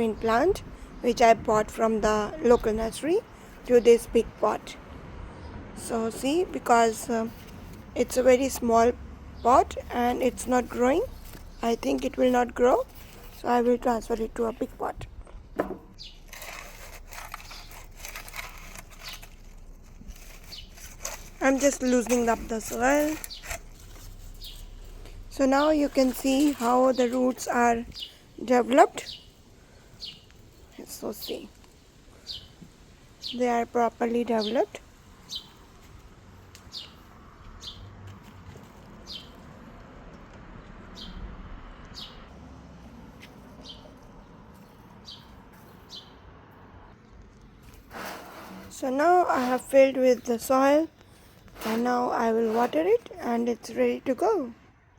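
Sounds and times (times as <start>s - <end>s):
faint background noise: 0.0s - 54.9s
soil scraping and crumbling in pot: 9.5s - 15.0s, 15.9s - 29.2s, 47.1s - 54.4s
bird chirping: 15.7s - 16.4s, 20.2s - 29.4s, 33.2s - 35.6s.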